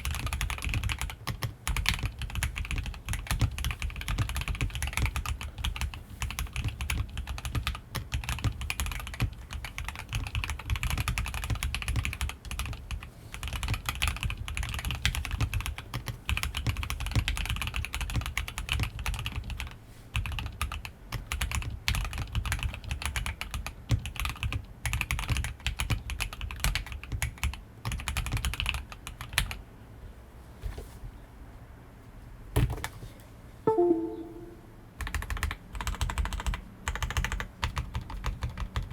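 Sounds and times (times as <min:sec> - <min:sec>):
mechanical keyboard typing: 0:00.0 - 0:29.6, 0:35.0 - 0:38.9
short pitched ringing: 0:33.7 - 0:34.7.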